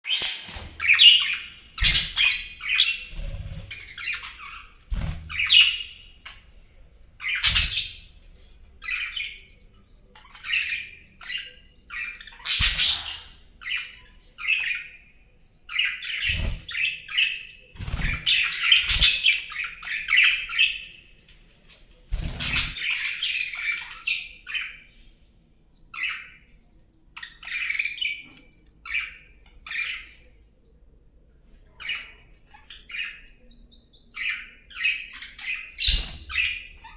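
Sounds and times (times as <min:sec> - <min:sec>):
budgerigars chirping and squawking: 0:00.0 - 0:36.9.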